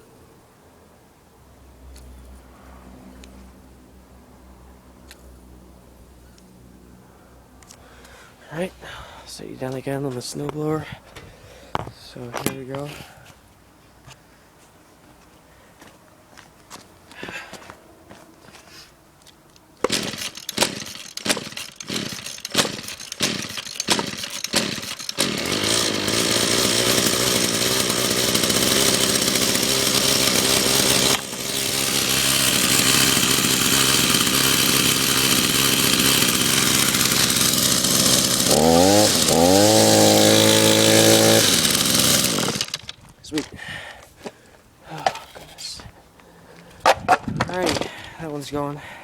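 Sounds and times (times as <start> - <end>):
pull-start strokes: 19.8 - 43.0
string trimmer engine running: 19.8 - 43.0.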